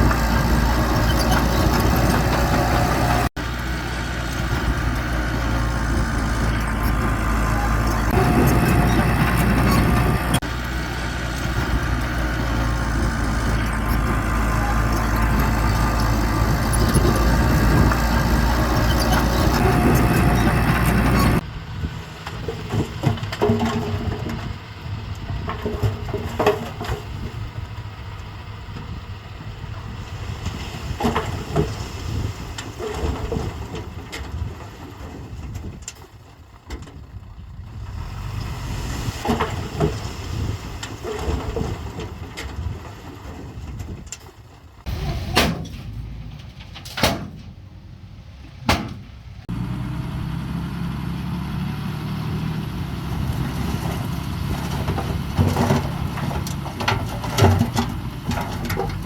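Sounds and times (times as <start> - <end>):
heavy machine engine running: 0.0 - 34.5, 44.6 - 59.0
metallic knocks and clanks: 45.3 - 47.8, 48.6 - 49.2, 53.8 - 59.0.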